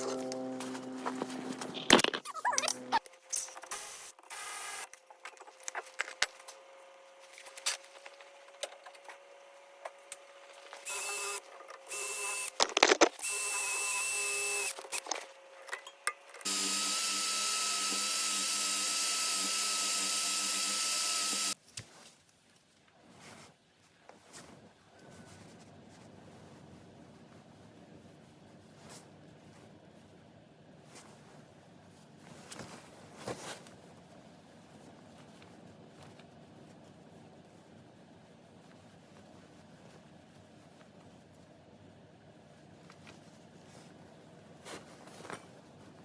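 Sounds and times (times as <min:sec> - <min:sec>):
small power tool running: 0:10.8 - 0:12.6, 0:16.4 - 0:21.6.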